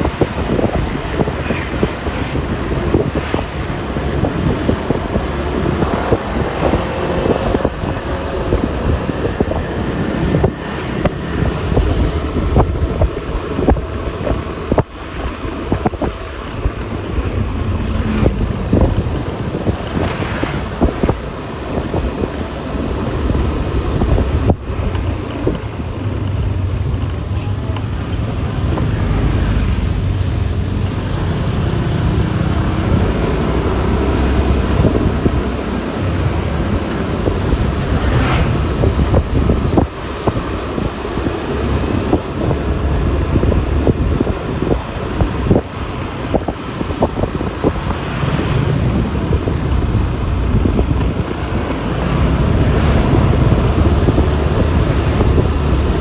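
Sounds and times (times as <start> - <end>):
road noise: 0.0 - 56.0
wind buffeting microphone: 0.0 - 56.0
scooter engine running: 20.6 - 56.0.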